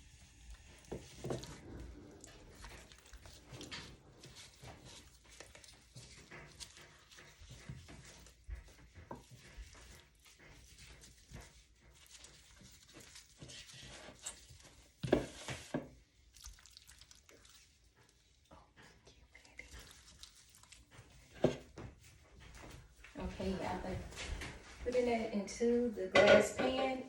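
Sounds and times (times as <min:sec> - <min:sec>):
dish clattering: 0:26.0 - 0:27.0.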